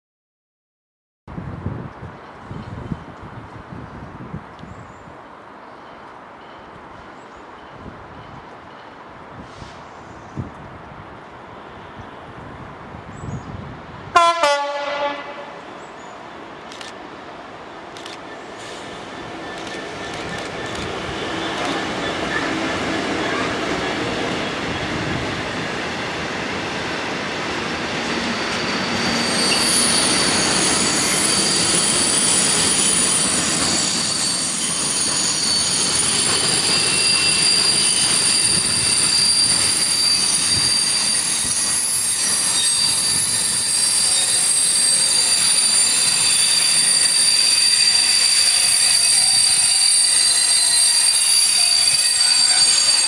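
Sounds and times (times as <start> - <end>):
high-pitched wheel squeal: 28.4 - 53.0.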